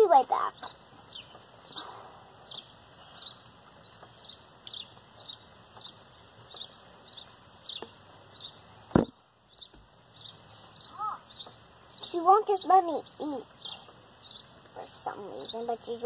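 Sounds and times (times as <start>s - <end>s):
small bird chirping: 0.0s - 8.7s, 9.5s - 16.0s
sharp thump: 8.9s - 9.2s.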